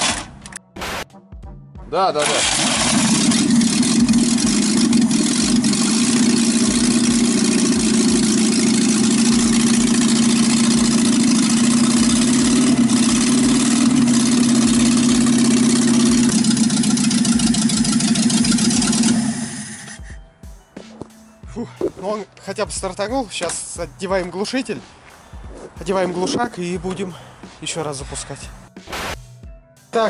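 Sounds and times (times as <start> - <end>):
car engine running without muffler: 2.4 - 20.1.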